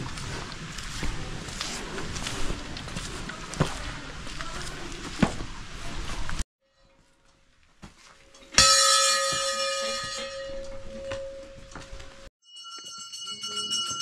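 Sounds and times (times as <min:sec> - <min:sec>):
higher-pitched bell ringing: 0:08.6 - 0:14.0
temple bell ringing: 0:08.6 - 0:14.0.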